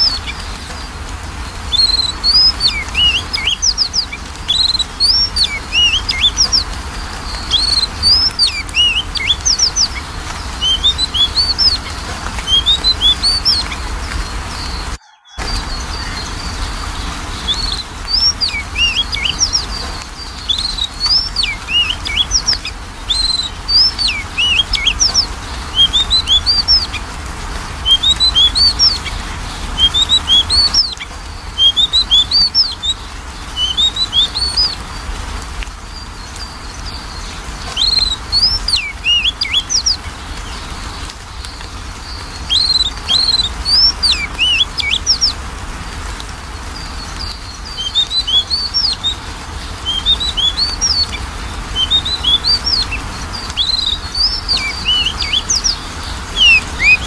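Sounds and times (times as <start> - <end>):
bird singing whistled notes: 0.0 - 27.0, 27.8 - 29.2, 29.8 - 35.0, 35.9 - 40.7, 41.3 - 45.4, 46.8 - 57.0.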